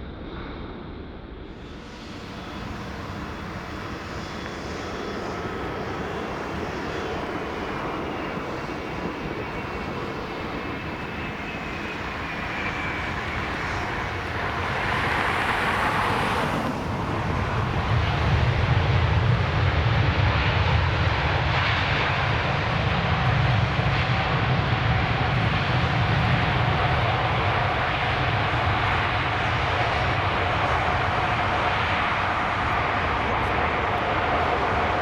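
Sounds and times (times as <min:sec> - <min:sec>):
jet engine deep rumble: 0:00.0 - 0:35.0
jet engine whine: 0:00.0 - 0:35.0.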